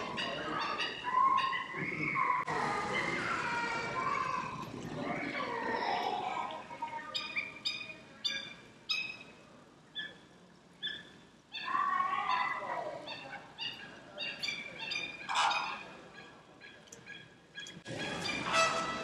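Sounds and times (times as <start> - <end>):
sliding bird call: 18.0 - 19.0.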